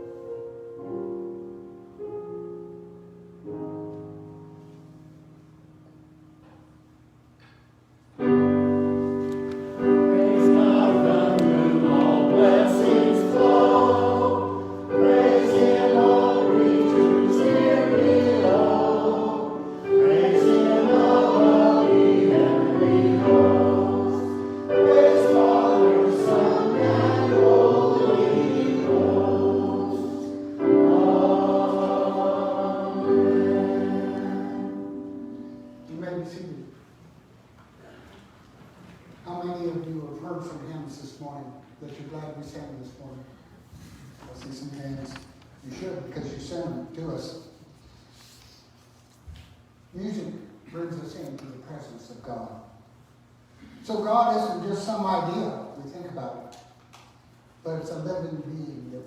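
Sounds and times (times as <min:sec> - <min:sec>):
choir singing a hymn: 0:08.6 - 0:35.9.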